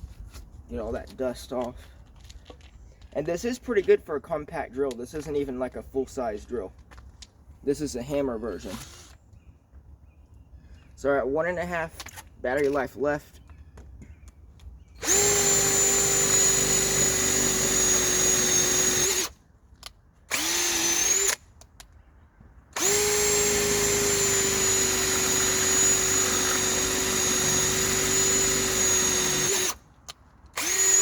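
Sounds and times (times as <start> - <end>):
cordless drill motor whine: 8.6 - 9.2, 15.0 - 19.3, 20.3 - 21.4, 22.8 - 29.8, 30.6 - 31.0.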